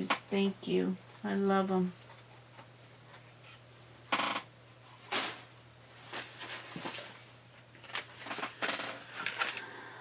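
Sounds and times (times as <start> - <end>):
packaging crinkling and rustling: 6.0 - 9.6.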